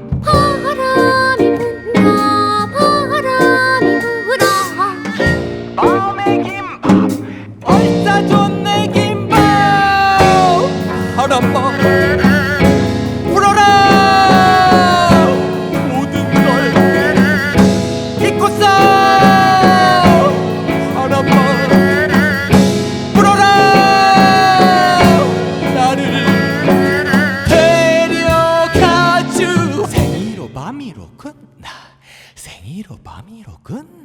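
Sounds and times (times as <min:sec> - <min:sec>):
held melody notes with vibrato: 0:00.0 - 0:30.7
steady drum beat: 0:04.6 - 0:30.7.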